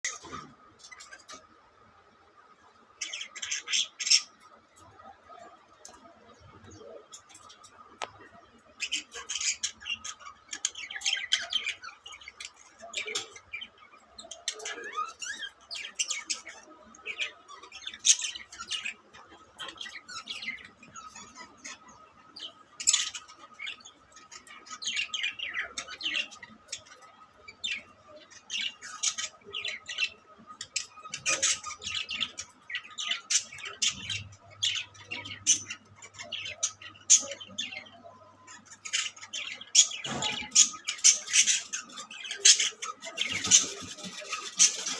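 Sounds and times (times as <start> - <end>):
budgerigars chirping and squawking: 0.0 - 1.4, 3.0 - 44.9.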